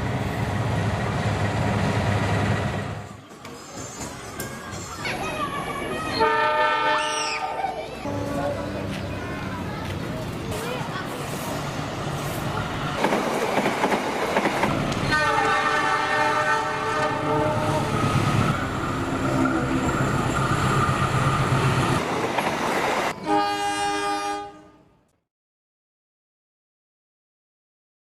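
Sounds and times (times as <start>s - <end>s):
train rumble and wheel clatter: 0.0s - 24.5s
locomotive horn: 6.2s - 7.1s, 15.1s - 18.0s, 23.2s - 24.9s.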